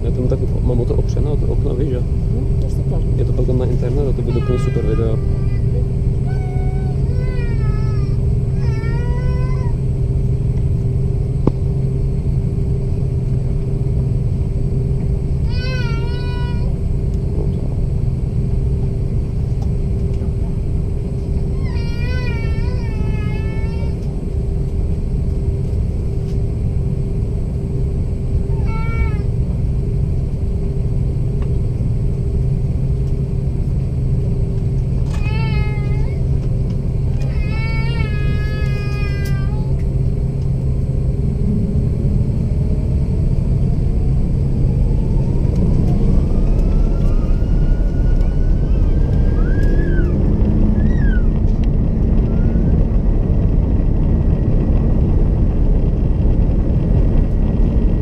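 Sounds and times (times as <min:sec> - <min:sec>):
airliner cabin engine drone: 0:00.0 - 0:58.0
high-pitched wavering cry: 0:46.2 - 0:51.4.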